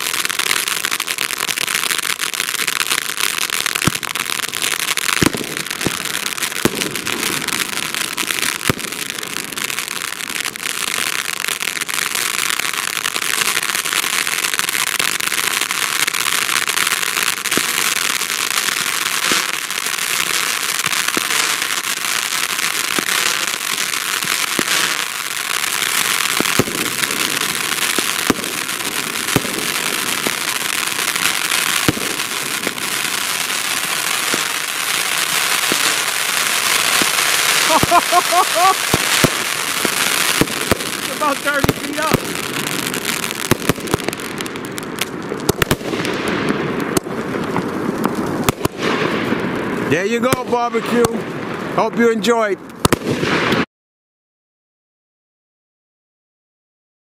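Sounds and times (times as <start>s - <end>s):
fountain firework hissing: 0.0s - 52.0s
sharp pops and crackles: 0.0s - 53.7s.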